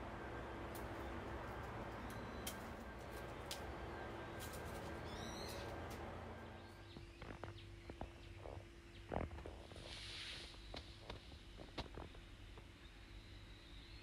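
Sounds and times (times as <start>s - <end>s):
birds calling: 0.0s - 9.4s
steady background hum: 0.0s - 14.0s.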